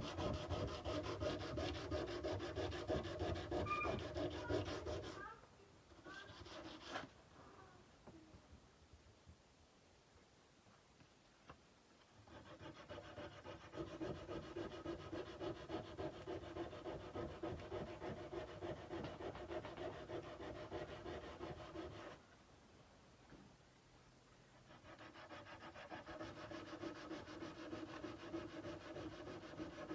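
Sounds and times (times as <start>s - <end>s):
sandpaper rubbing on steel blade: 0.0s - 5.3s, 6.1s - 7.1s, 12.3s - 22.2s, 24.7s - 29.9s.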